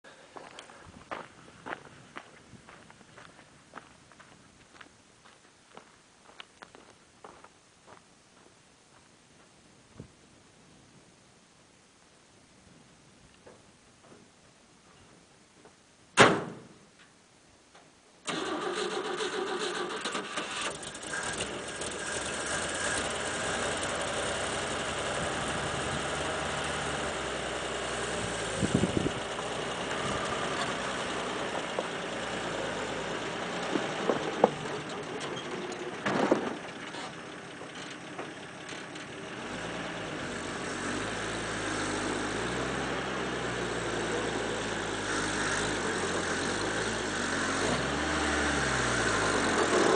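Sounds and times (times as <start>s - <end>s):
truck engine starting and running: 18.2s - 49.9s
short clunks: 33.6s - 38.4s.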